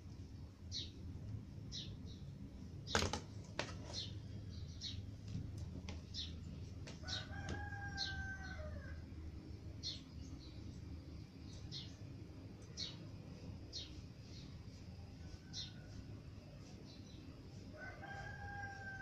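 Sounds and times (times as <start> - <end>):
steady low hum: 0.0 - 19.0
rooster crowing: 7.0 - 9.1, 17.7 - 19.0
small bird chirping: 9.8 - 19.0.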